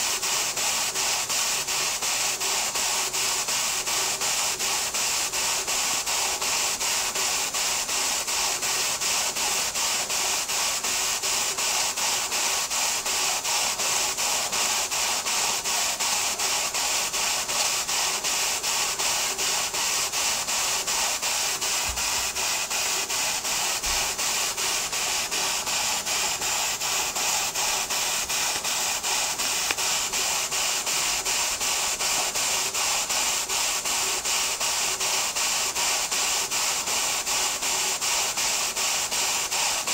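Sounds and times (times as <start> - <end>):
steam engine exhaust puffs: 0.0 - 39.9
steam hissing: 0.0 - 39.9.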